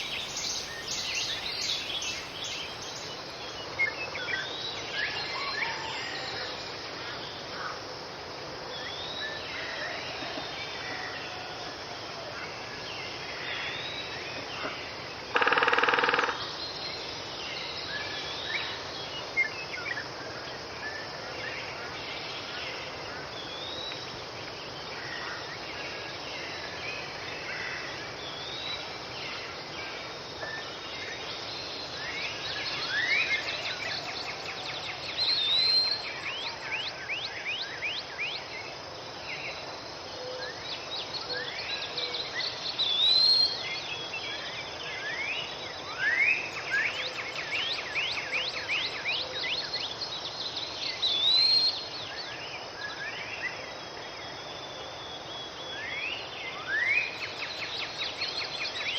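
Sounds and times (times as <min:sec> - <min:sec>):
songbird singing trills: 0:00.0 - 0:03.5, 0:32.5 - 0:38.4
steady hiss: 0:00.0 - 0:03.8.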